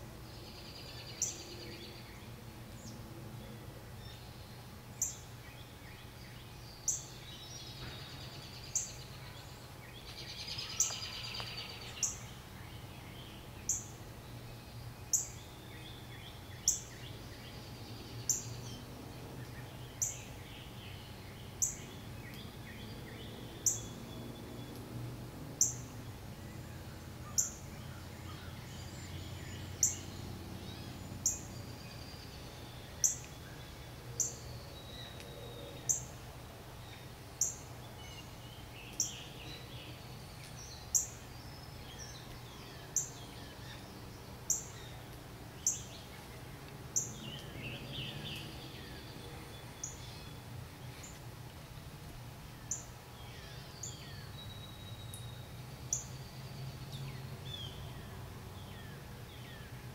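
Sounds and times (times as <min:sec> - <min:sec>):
low steady hum: 0:00.0 - 0:59.9
other birds chirping: 0:05.0 - 0:24.9.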